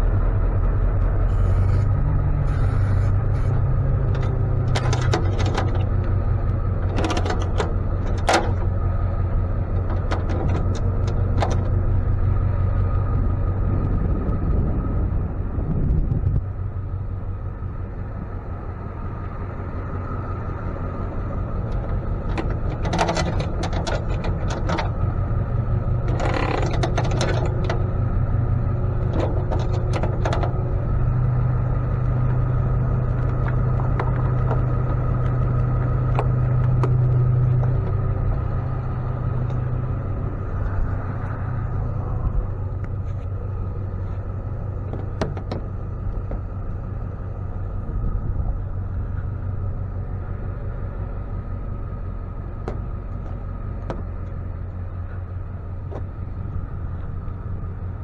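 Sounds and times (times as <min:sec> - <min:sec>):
truck engine running: 0:00.0 - 0:58.0
metallic clicks and rattles: 0:03.1 - 0:08.8, 0:09.7 - 0:12.0, 0:21.7 - 0:25.2, 0:25.9 - 0:27.9, 0:28.9 - 0:30.7.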